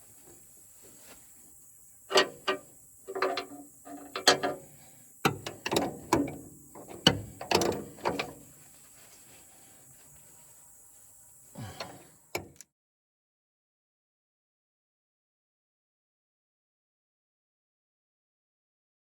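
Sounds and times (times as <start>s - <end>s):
mechanical clicks and clanks: 2.1s - 4.6s, 5.2s - 8.4s.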